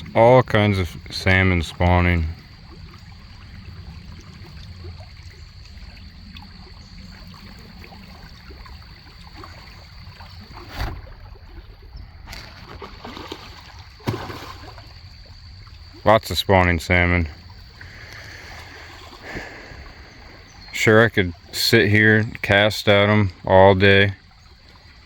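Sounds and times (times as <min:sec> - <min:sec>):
river water trickling over stones: 0:00.0 - 0:25.0
short knocks or splashes: 0:09.2 - 0:15.3.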